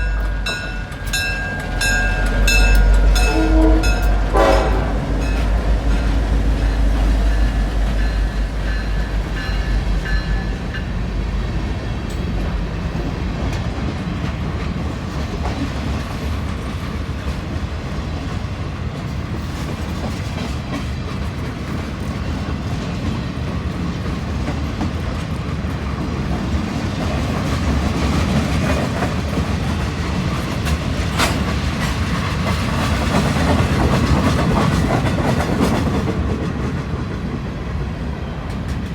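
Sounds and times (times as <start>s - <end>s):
locomotive engine rumble: 0.0s - 14.4s
train wheels clicking over rail joints: 0.0s - 18.4s, 19.0s - 37.4s.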